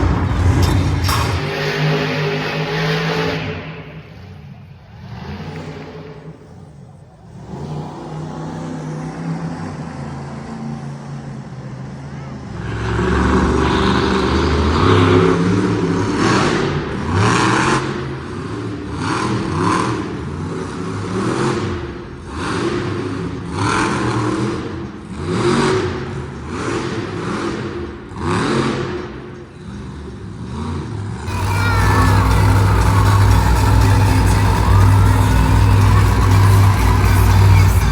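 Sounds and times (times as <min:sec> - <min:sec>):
truck engine revving: 0:00.0 - 0:06.5, 0:31.3 - 0:37.9.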